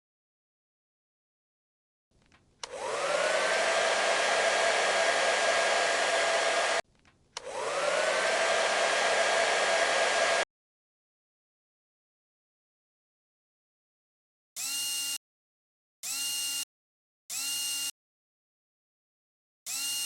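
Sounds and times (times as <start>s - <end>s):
hair dryer blowing: 2.6s - 6.8s, 7.4s - 10.5s.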